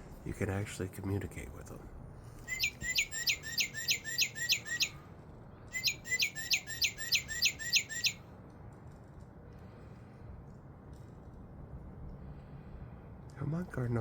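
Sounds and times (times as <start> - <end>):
recorded bird song whistles: 2.5 - 5.0, 5.7 - 8.2.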